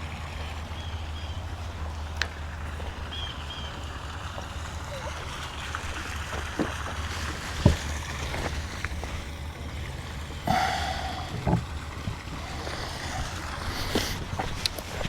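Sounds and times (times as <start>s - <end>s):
short knocks: 11.2s - 14.8s.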